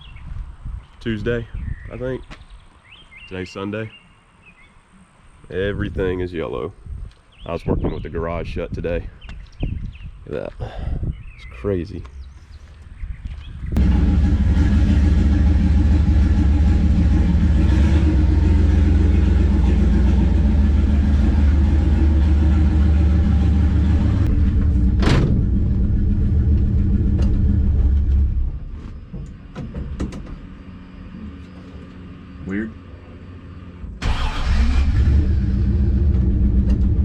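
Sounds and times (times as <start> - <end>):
car engine idling: 13.8 - 29.4, 32.9 - 37.0.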